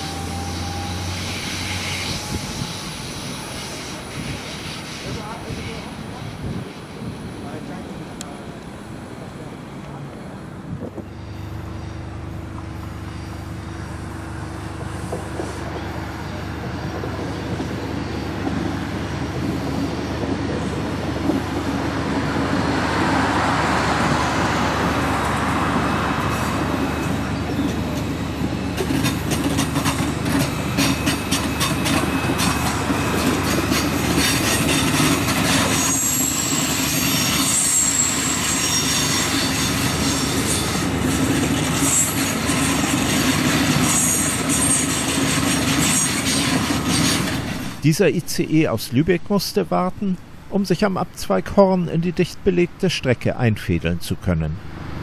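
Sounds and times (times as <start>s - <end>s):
high wheel squeal: 0.0s - 7.4s, 11.0s - 20.8s, 22.8s - 47.8s
high-speed train rumble: 0.0s - 55.0s.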